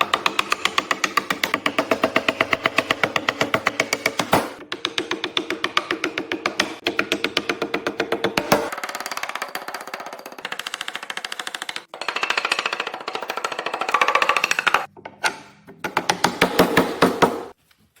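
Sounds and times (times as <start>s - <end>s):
knocks: 0.0s - 8.8s.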